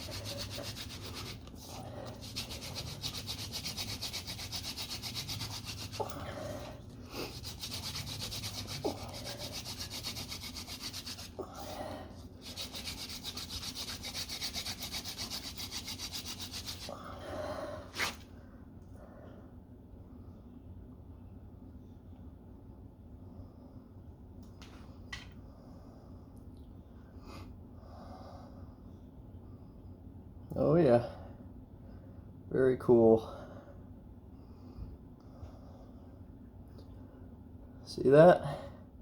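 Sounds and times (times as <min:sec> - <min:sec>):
wooden spindle rubbing on board: 0:00.0 - 0:06.3, 0:07.3 - 0:11.5, 0:12.4 - 0:16.9.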